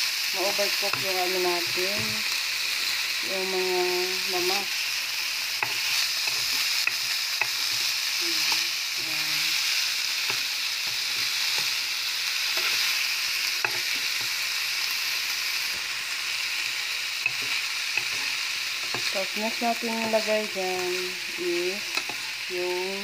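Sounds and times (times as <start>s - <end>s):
beans sizzling in oil: 0.0s - 23.0s.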